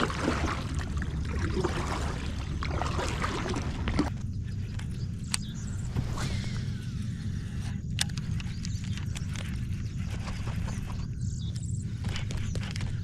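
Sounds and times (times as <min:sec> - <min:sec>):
water sloshing against kayak hull: 0:00.0 - 0:04.3
low rumble: 0:00.0 - 0:12.0
sharp clicks: 0:07.9 - 0:09.6.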